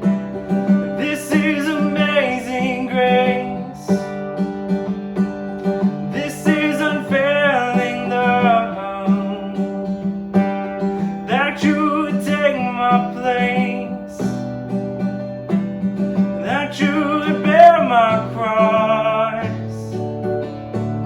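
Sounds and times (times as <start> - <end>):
strummed acoustic guitar: 0.0 - 21.0
person singing: 0.1 - 4.2, 6.1 - 10.0, 11.0 - 14.4, 16.4 - 20.1.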